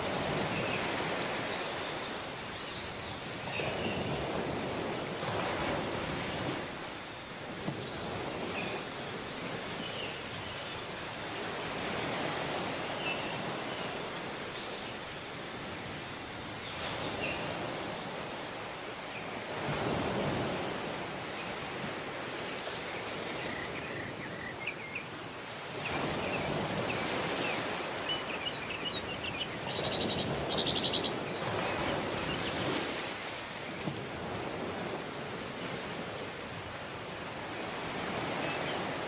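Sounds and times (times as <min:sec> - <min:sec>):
waves washing on a beach: 0:00.0 - 0:39.0
small birds chirping: 0:25.8 - 0:32.8.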